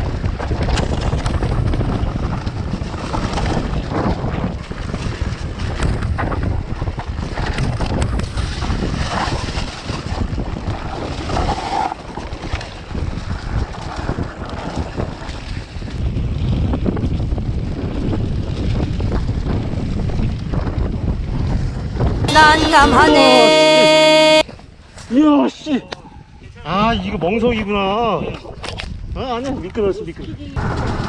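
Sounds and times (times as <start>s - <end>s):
wind buffeting microphone: 0.0s - 11.6s, 12.4s - 22.3s
mountain bike rumble and rattle: 0.0s - 21.7s.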